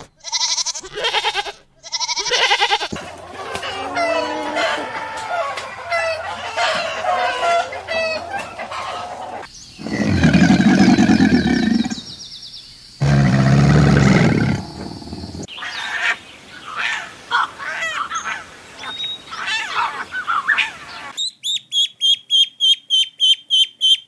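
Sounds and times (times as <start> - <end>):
loud low animal calls: 2.0 - 12.1, 13.0 - 15.5
chickens clucking: 2.9 - 12.1.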